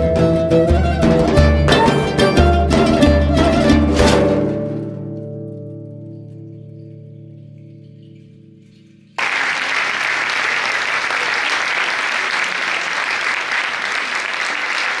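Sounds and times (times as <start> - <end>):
audience applause: 9.2 - 15.0.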